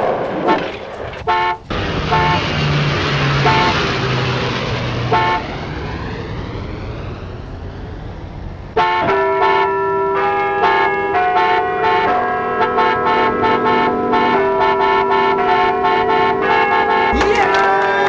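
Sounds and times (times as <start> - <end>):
steady rushing noise: 0.0 - 8.8
short horn toots: 0.4 - 2.4
bells ringing: 9.2 - 18.0.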